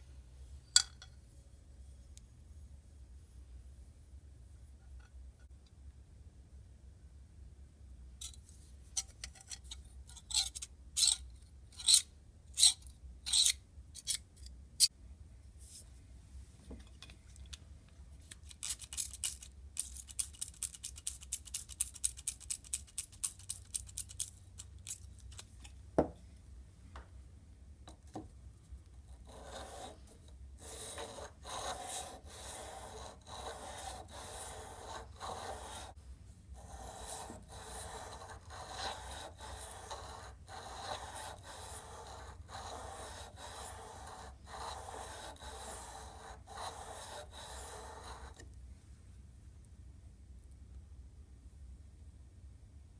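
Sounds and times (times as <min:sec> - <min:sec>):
metal being hand-filed: 0:09.0 - 0:14.9, 0:29.1 - 0:36.0, 0:36.6 - 0:48.4.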